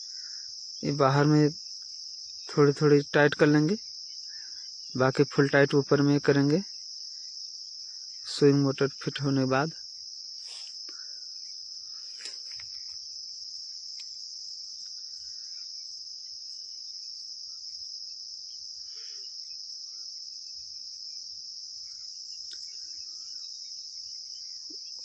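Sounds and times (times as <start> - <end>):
crickets chirring: 0.0 - 25.0
faint clicks: 22.4 - 22.8.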